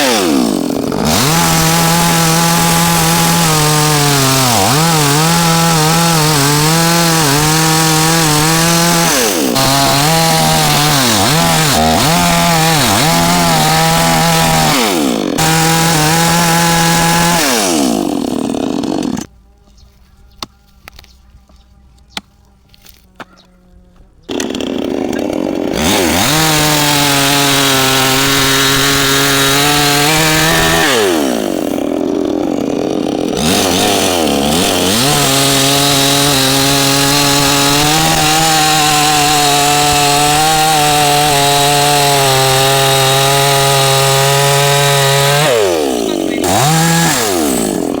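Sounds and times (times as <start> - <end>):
chainsaw cutting wood: 0.0 - 19.3, 24.3 - 48.0.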